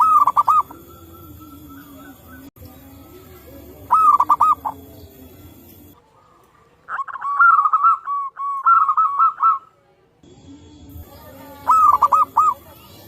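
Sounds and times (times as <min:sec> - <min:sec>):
dove cooing: 0:00.0 - 0:06.0, 0:06.9 - 0:09.7, 0:11.1 - 0:13.0.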